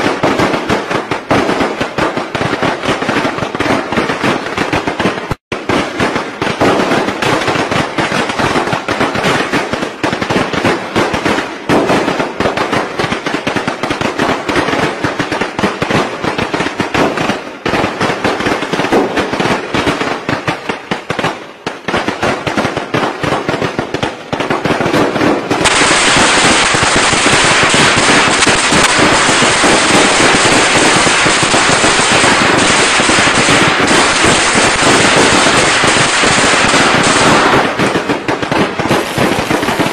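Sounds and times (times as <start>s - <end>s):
firecracker strings popping: 25.1s - 39.9s.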